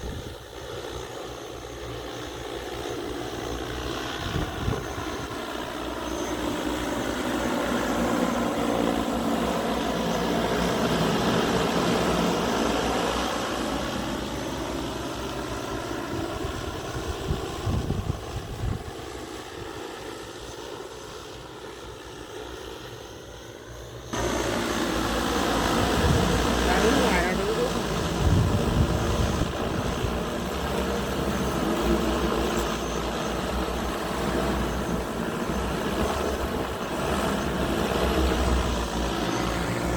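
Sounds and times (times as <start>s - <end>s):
drone propellers buzzing: 0.0s - 39.9s
wind-like noise: 3.9s - 5.4s, 16.1s - 19.7s, 24.1s - 26.7s, 27.8s - 39.9s.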